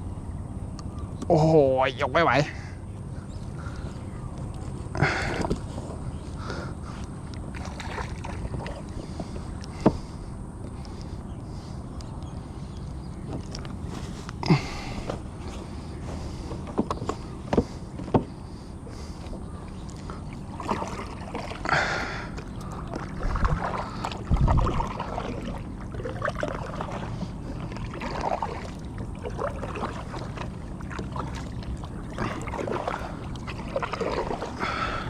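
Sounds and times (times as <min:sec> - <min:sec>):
water sloshing and splashing: 0:03.5 - 0:11.1, 0:12.8 - 0:35.0
knocks against kayak hull: 0:16.5 - 0:18.3.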